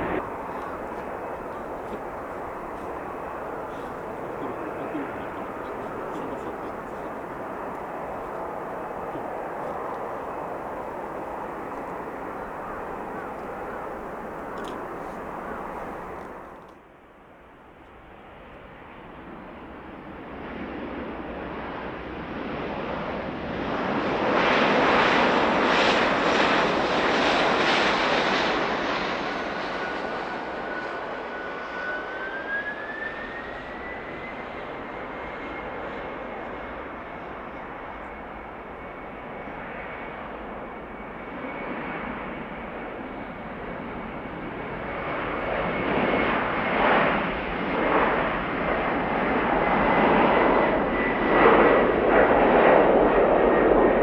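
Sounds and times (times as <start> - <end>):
jet engines running: 0.0 - 16.8.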